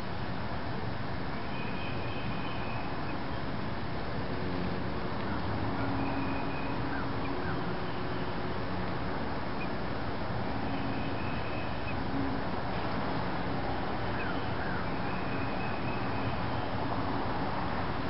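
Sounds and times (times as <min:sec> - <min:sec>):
steady rushing noise: 0:02.9 - 0:18.0
faint bird calls: 0:14.1 - 0:16.6.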